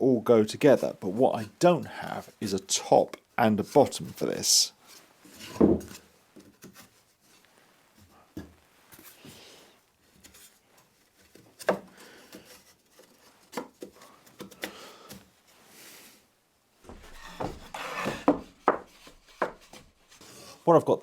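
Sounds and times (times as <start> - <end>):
boards sliding and scraping: 4.8 - 16.2, 16.8 - 20.6
wooden boards knocking: 5.5 - 5.9, 16.9 - 19.8.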